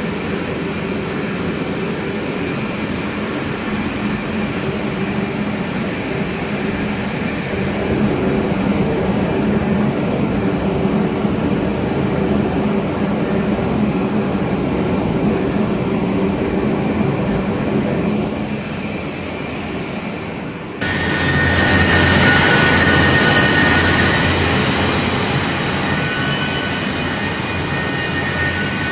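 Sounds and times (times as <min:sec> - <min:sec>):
high steady whine: 0:20.4 - 0:28.9
lathe humming: 0:20.8 - 0:28.9.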